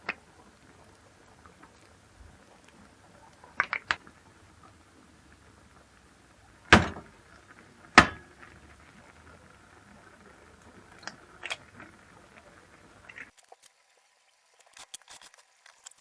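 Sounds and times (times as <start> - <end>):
loud knocks: 6.7 - 7.1.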